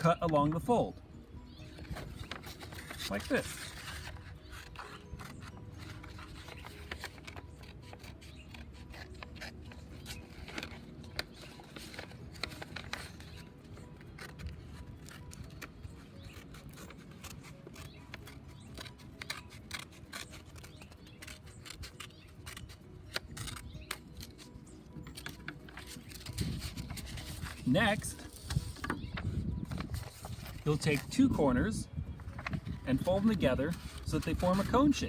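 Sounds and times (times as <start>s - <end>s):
scissors snipping paper: 14.2s - 29.1s.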